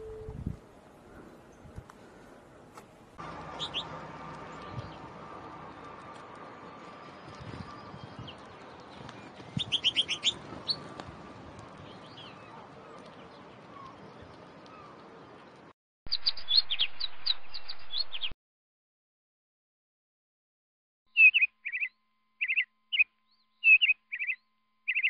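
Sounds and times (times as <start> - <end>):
small songbirds chirping: 3.2 - 18.3, 21.1 - 25.0.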